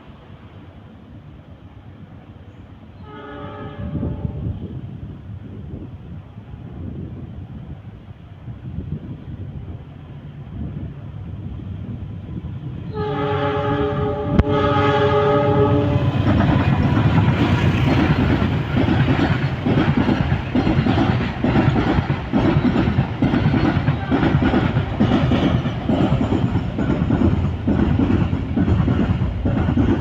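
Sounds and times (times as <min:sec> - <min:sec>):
train rumbling past: 0:00.0 - 0:30.0
locomotive horn: 0:03.0 - 0:04.5, 0:12.9 - 0:17.5.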